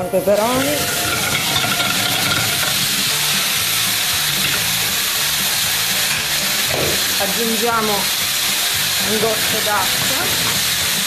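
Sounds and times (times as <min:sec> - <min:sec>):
peppers sizzling in a frying pan: 0:00.0 - 0:11.0.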